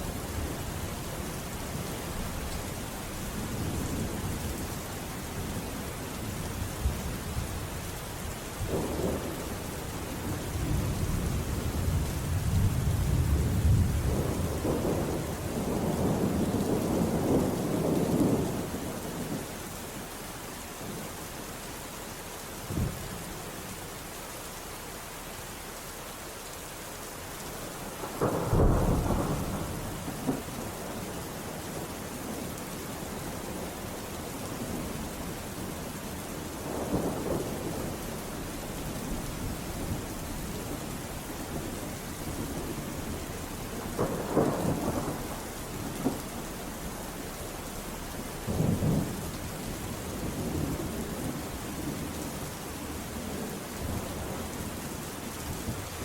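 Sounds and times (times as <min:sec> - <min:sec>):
steady rain: 0:00.0 - 0:56.0
thunder rumbling: 0:08.6 - 0:19.5, 0:27.8 - 0:32.5, 0:34.5 - 0:56.0.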